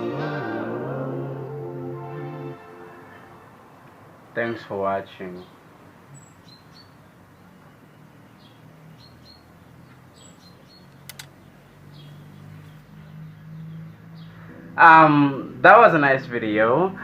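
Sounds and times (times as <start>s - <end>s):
faint high bird chirps: 5.4s - 14.5s
quick clicks: 10.9s - 11.4s.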